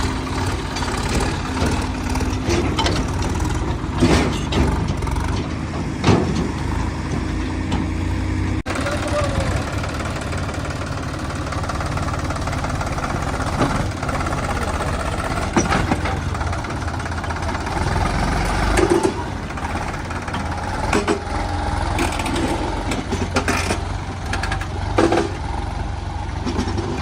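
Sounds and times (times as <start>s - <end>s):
heavy diesel machinery running: 0.0s - 27.0s
sharp clanks and knocks: 0.2s - 7.9s, 13.4s - 17.2s, 18.6s - 25.5s, 26.4s - 27.0s.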